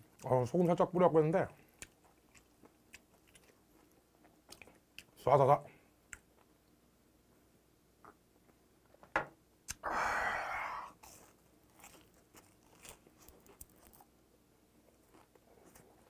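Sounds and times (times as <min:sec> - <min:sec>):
person chewing crunchy fish: 0:01.6 - 0:05.2, 0:11.0 - 0:14.1, 0:14.9 - 0:16.0.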